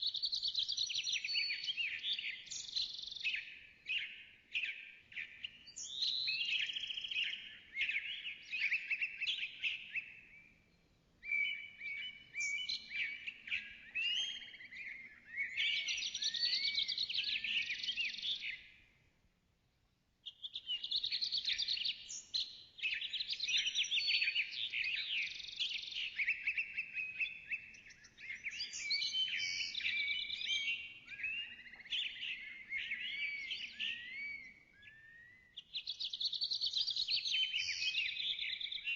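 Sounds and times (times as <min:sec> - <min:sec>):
songbird warbling: 0:11.2 - 0:18.6, 0:20.3 - 0:36.2.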